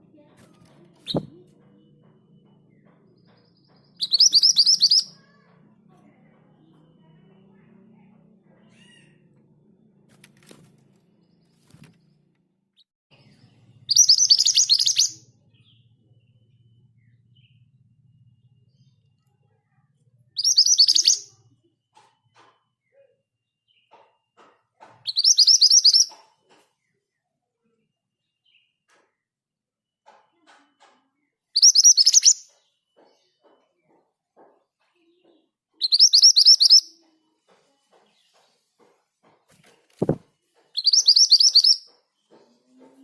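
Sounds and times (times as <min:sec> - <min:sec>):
bird singing rapid high notes: 0:01.0 - 0:01.4, 0:03.9 - 0:05.2, 0:13.9 - 0:15.2, 0:20.4 - 0:21.4, 0:25.1 - 0:26.1, 0:31.6 - 0:32.5, 0:35.8 - 0:36.9, 0:40.8 - 0:41.9.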